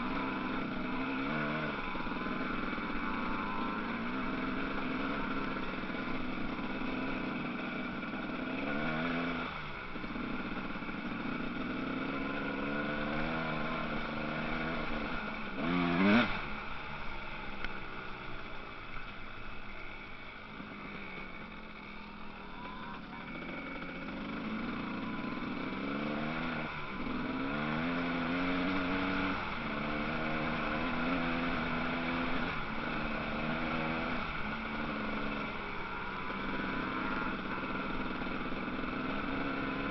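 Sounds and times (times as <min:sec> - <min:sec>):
bike passing with rising rev: 0:00.0 - 0:39.9
motocross bike engines revving: 0:00.0 - 0:39.9.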